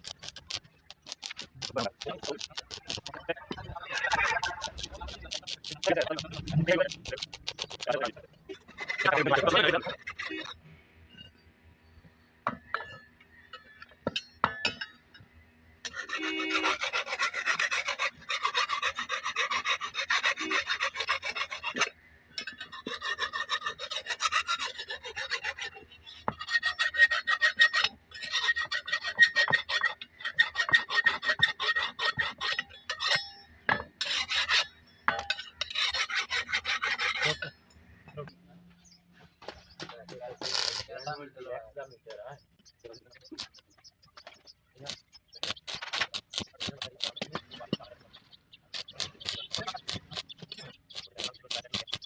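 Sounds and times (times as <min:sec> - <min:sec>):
clicks: 0:00.0 - 0:03.2
hand file rasping: 0:00.0 - 0:03.2, 0:03.8 - 0:08.1, 0:15.9 - 0:33.3, 0:34.0 - 0:34.7, 0:35.6 - 0:37.5, 0:43.3 - 0:43.6, 0:44.8 - 0:47.5, 0:48.7 - 0:52.0.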